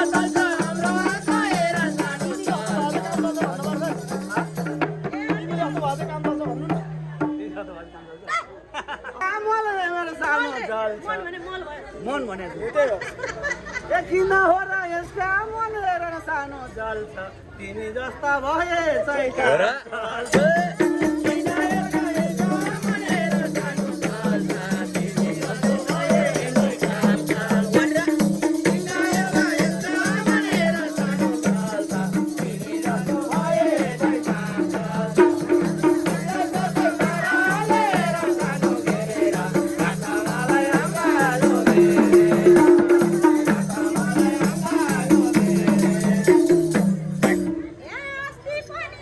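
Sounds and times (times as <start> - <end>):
fast percussion beat: 0.0 - 7.4, 20.2 - 47.8.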